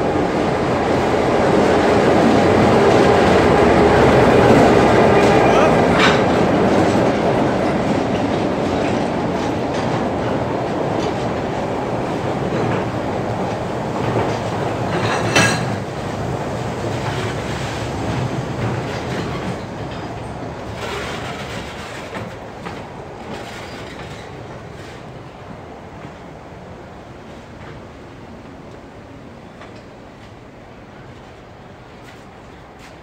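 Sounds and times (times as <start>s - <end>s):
wheels clacking over rail joints: 2.3s - 16.1s, 16.8s - 25.0s.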